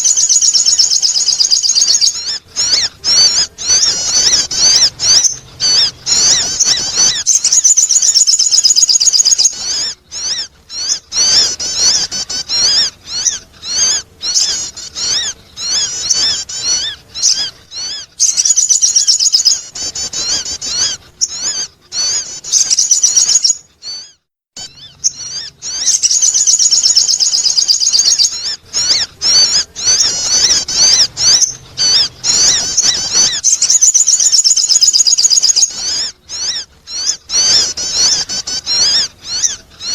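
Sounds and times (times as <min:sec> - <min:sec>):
bird chirps and trills: 0:00.0 - 0:39.9.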